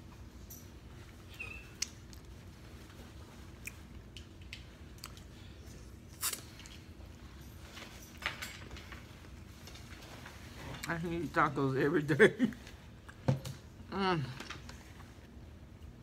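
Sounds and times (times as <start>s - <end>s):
person chewing with mouth closed: 3.4s - 7.0s
wet mouth clicks and smacks: 6.1s - 6.8s.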